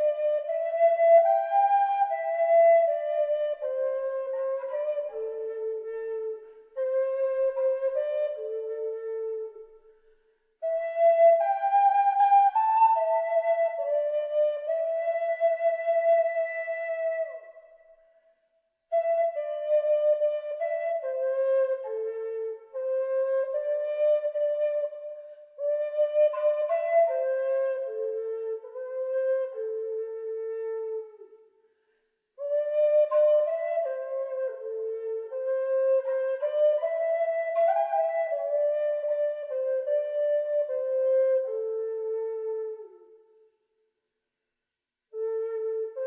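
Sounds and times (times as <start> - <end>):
wind instrument slow melody: 0.0 - 9.8
flute playing slow melody: 0.0 - 9.9, 10.6 - 18.3, 18.9 - 31.5, 32.4 - 43.4, 45.1 - 46.0.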